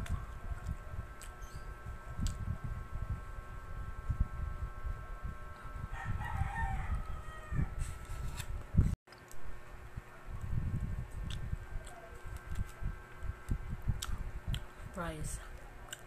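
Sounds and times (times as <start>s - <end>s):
chewing and mouth noises: 0.0s - 1.6s, 11.1s - 14.7s.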